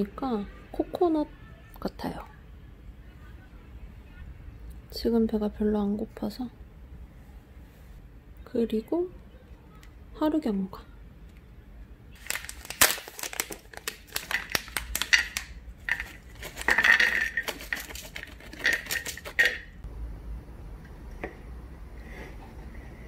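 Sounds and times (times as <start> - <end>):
plastic packet crinkling: 12.2 - 19.8
nuts clattering onto a plate: 13.5 - 19.8.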